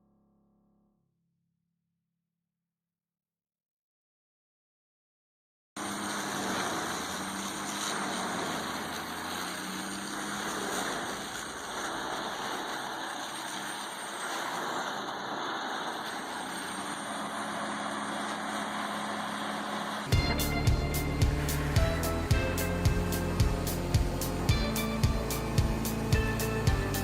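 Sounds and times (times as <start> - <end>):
industrial machine running: 5.8 - 27.0.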